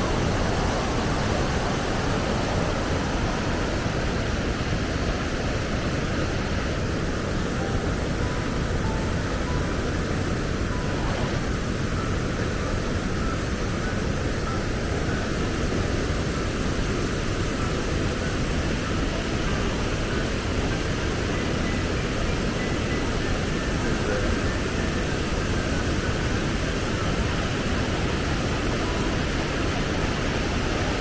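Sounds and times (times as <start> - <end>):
waterfall roaring: 0.0 - 12.7
faint short high notes: 7.4 - 13.3.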